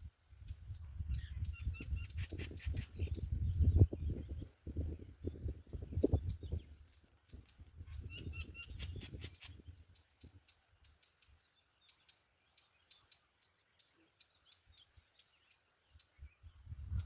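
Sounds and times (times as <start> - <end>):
high bird chirps: 1.1 - 10.1.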